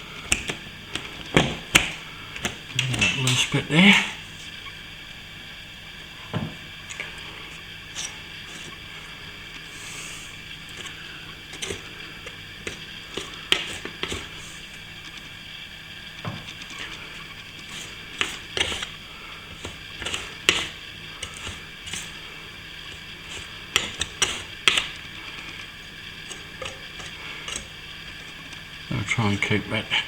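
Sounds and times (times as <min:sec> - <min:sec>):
plastering tool scraping plaster: 0:07.9 - 0:14.8, 0:16.6 - 0:28.6.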